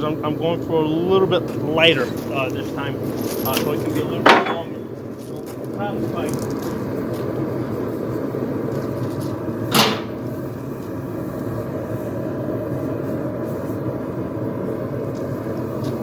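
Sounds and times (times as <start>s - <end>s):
sharp knock: 9.7s - 10.2s.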